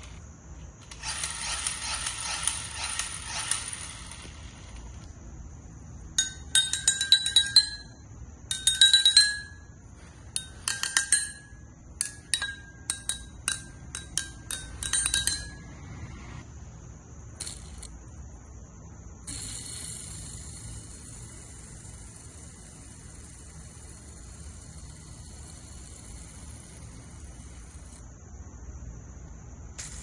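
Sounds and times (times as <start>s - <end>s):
steady high hiss: 0.0s - 30.0s
glass clinking and tapping: 6.2s - 15.6s.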